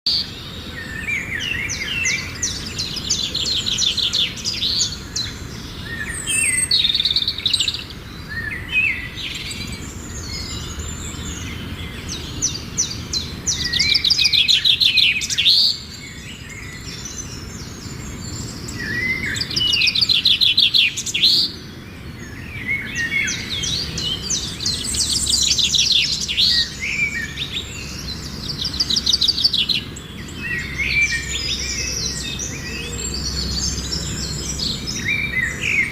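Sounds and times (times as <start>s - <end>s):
songbirds singing: 0.0s - 35.9s.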